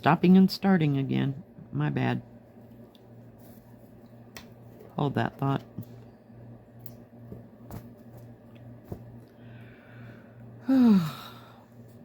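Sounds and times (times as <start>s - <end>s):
low electrical hum: 0.0s - 12.0s
person sighing: 10.6s - 11.6s.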